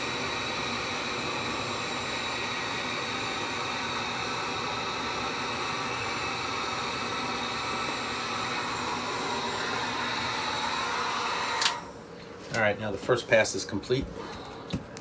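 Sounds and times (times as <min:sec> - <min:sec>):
heat gun blowing air: 0:00.0 - 0:11.9.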